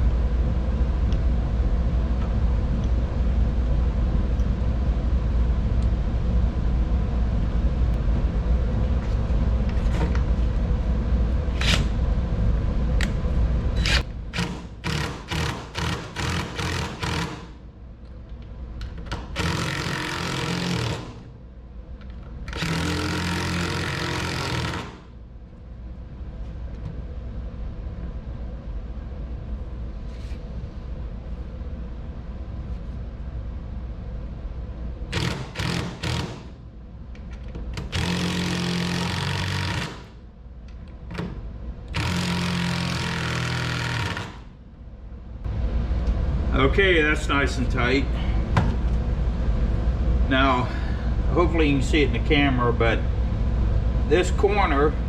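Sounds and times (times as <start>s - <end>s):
power drill driving bolts into wood: 13.8s - 17.5s, 19.1s - 21.2s, 22.5s - 25.0s, 35.1s - 36.5s, 37.8s - 40.1s, 41.9s - 44.5s.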